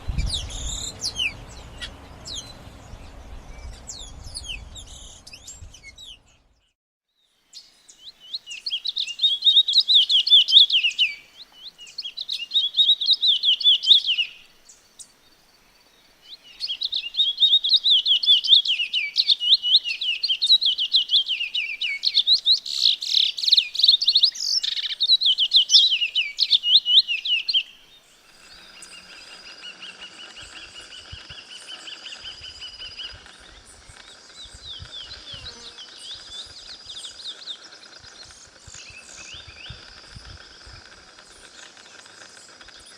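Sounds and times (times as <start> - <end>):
bird singing rapid high chirps: 0.1 - 6.6, 16.5 - 27.8.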